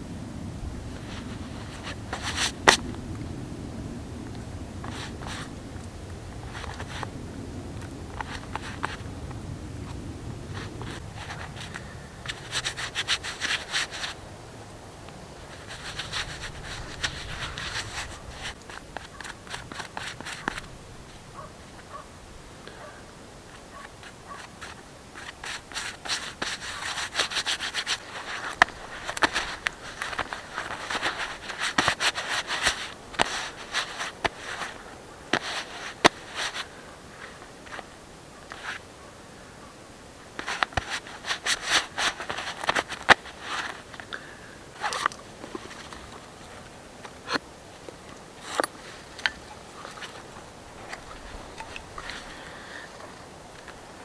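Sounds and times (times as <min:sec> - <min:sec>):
knife scraping wood: 0:15.6 - 0:20.6, 0:48.4 - 0:52.8.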